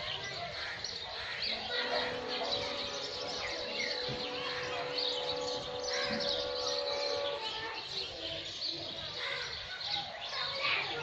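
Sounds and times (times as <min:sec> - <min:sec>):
small birds chirping: 0:00.0 - 0:11.0
steady low hum: 0:01.5 - 0:08.1.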